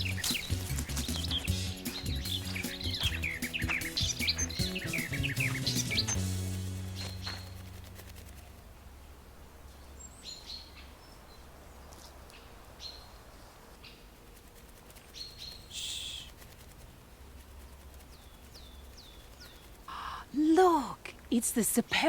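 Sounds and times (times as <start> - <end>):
harsh bird burst: 0.0 - 8.6, 14.6 - 20.4
low background hum: 0.0 - 22.0
small birds chirping: 0.0 - 22.0.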